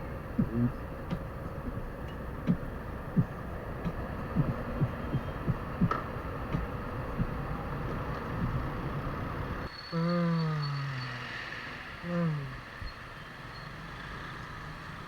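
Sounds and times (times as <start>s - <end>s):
short low thumps: 0.0s - 9.7s
wind and road noise from motorcycle: 0.0s - 9.7s.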